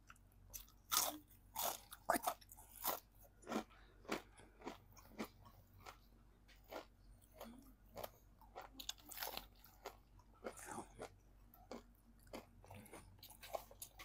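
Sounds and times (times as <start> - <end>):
crunching crispy fried chicken: 6.6 - 11.1.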